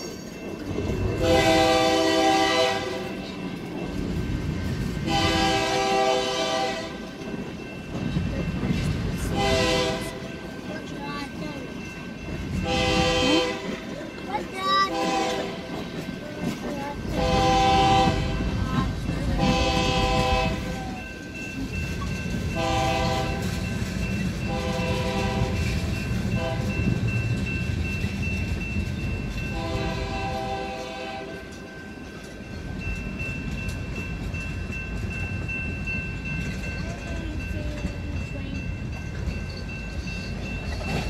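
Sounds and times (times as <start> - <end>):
train wheels rumbling on rails: 0.0 - 41.0
train horn blasts: 1.2 - 3.2, 5.0 - 7.1, 9.3 - 10.2, 12.6 - 13.8, 14.9 - 15.8, 17.2 - 18.6, 19.4 - 20.8, 22.6 - 23.6, 24.5 - 26.8, 29.5 - 31.5.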